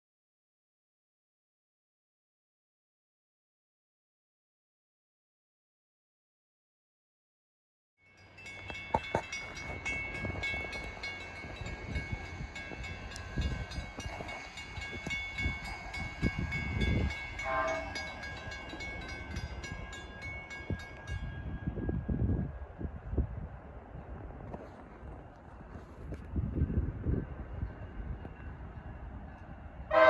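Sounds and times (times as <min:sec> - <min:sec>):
steady high ringing tone: 0:08.1 - 0:22.7
wind buffeting microphone: 0:08.4 - 0:30.0
short train horn note: 0:17.4 - 0:18.1.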